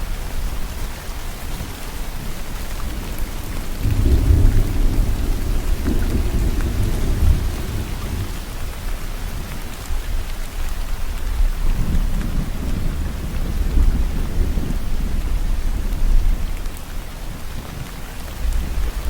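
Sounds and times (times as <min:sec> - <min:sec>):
steady rainfall: 0:00.0 - 0:19.0
thunder rumbling: 0:02.6 - 0:08.8.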